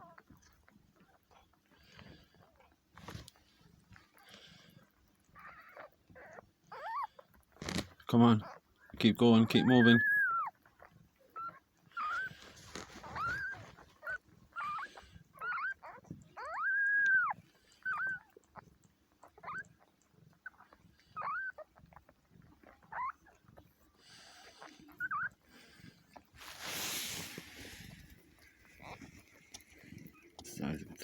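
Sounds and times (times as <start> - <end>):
soft rustling: 0.2 - 6.6, 8.8 - 31.0
kittens mewing: 12.0 - 31.0.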